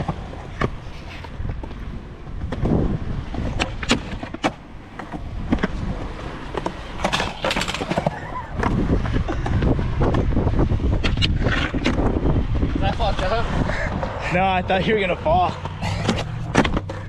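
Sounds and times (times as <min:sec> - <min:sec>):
skateboard clacking on ground: 0:00.0 - 0:10.3, 0:15.3 - 0:17.0
skateboard rolling: 0:00.0 - 0:17.0.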